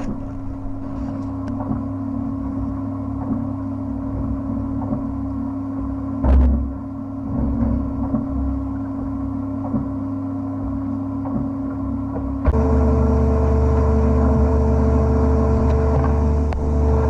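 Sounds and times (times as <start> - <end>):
blasting machine motor hum: 12.4 - 17.0.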